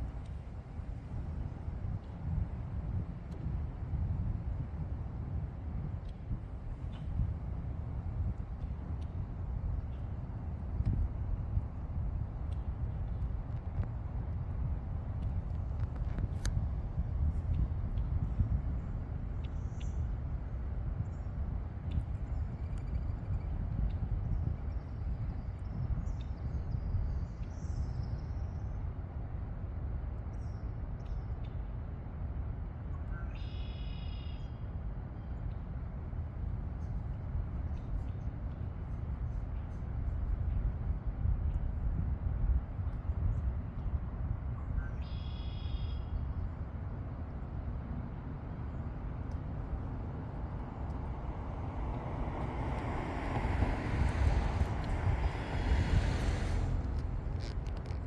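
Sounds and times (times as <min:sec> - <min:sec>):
low outdoor rumble: 0:00.0 - 0:58.0
faint bird chirps: 0:33.1 - 0:34.6, 0:44.8 - 0:46.2
steady low rumble: 0:45.9 - 0:58.0.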